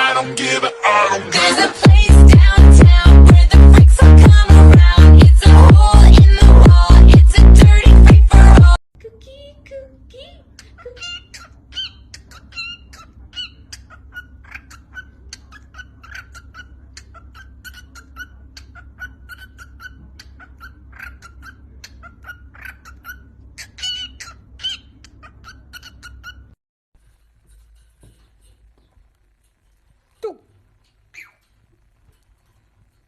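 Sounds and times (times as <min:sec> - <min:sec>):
parrot chirping and whistling: 0:11.0 - 0:26.6, 0:31.1 - 0:31.4.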